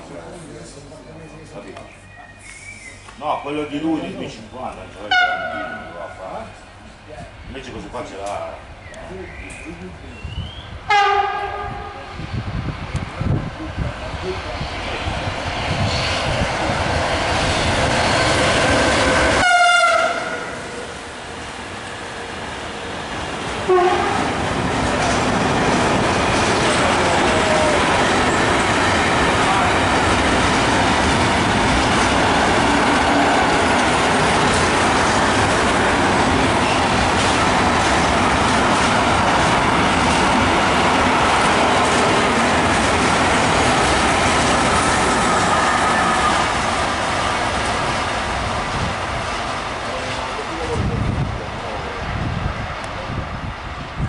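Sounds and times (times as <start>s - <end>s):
freight train rolling past: 0.0s - 54.0s
wheels squealing on rail: 1.9s - 3.2s, 44.2s - 46.6s.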